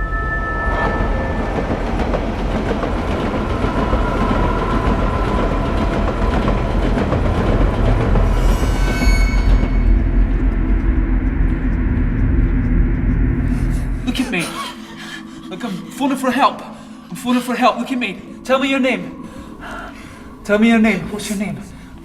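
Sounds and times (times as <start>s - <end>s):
high-pitched squeal: 0.0s - 10.8s
heavy rumble: 0.0s - 14.3s.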